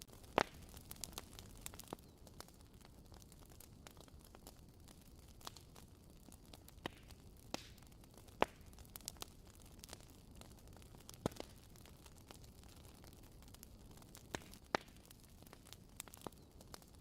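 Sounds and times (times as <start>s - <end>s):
fire crackling in fireplace: 0.0s - 17.0s.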